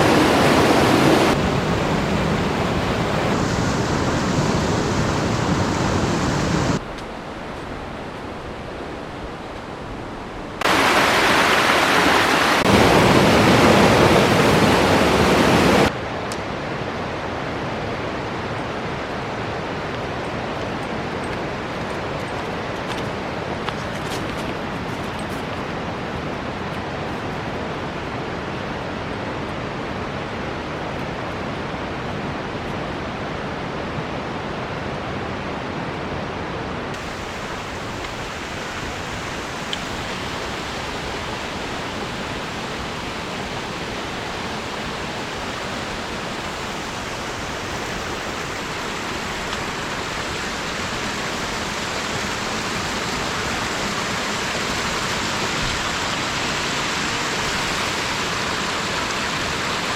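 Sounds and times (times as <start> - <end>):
river rushing: 0.0 - 59.9.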